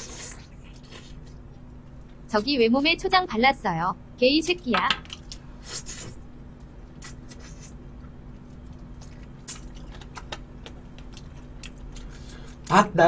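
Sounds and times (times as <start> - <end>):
person chewing food: 6.9 - 12.7.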